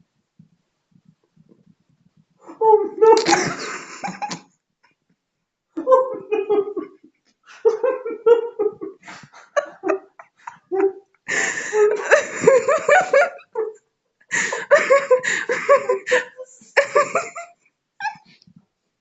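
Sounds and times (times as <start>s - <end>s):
short vocal sounds: 2.5s - 3.6s
hearty laughter: 2.9s - 4.4s, 5.8s - 18.3s.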